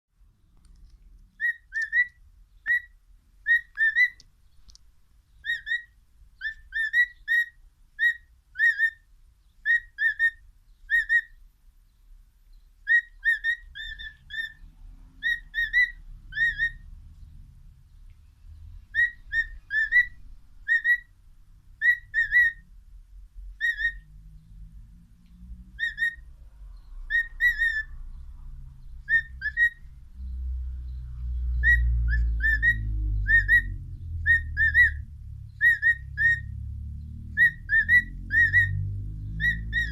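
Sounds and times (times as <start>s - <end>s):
cockatiel whistling: 1.4s - 4.2s, 5.4s - 9.0s, 9.6s - 11.4s, 12.8s - 14.6s, 15.2s - 16.8s, 18.9s - 21.1s, 21.8s - 22.6s, 23.6s - 24.1s, 25.8s - 26.3s, 27.1s - 28.0s, 29.0s - 29.9s, 31.6s - 36.5s, 37.4s - 38.8s, 39.4s - 39.9s.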